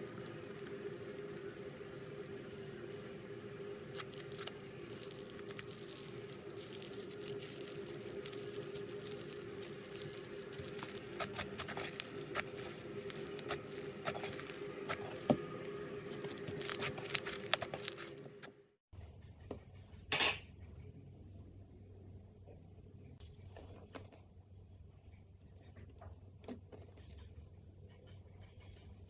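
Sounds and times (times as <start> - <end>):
slime squishing: 0.0 - 18.3
steady low hum: 0.0 - 29.0.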